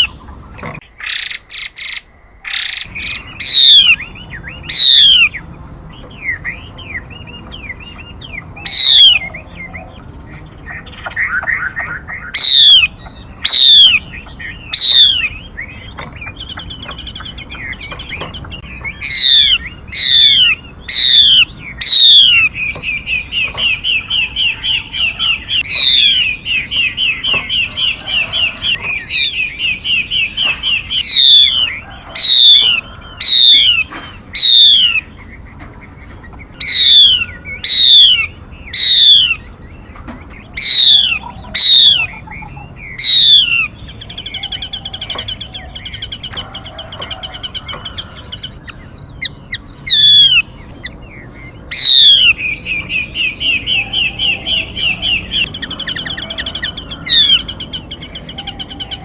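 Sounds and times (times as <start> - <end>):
fast bird trill: 0.0 - 59.0
downward sweeping bird whistles: 1.6 - 9.8, 11.0 - 35.1, 36.6 - 39.4, 51.2 - 59.0.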